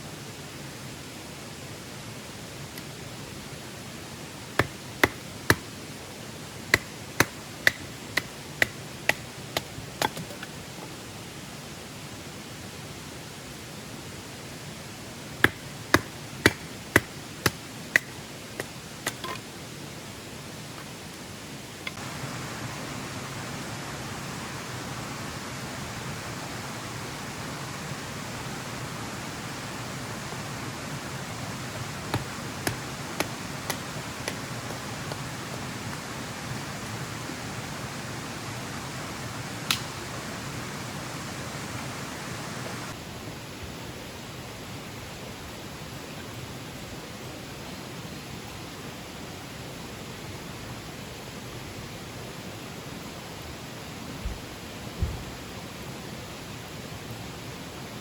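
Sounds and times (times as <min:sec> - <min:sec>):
rushing water: 0:01.2 - 0:43.0.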